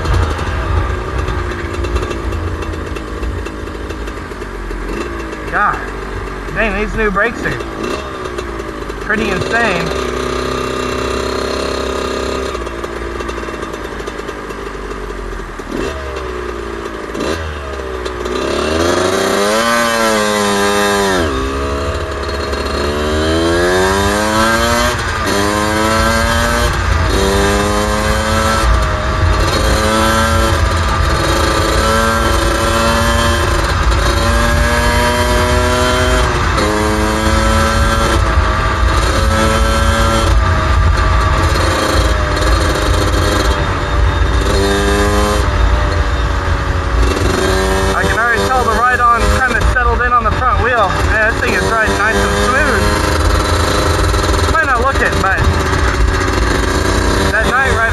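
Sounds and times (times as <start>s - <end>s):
two-stroke motorcycle engine revving: 0.0s - 57.9s.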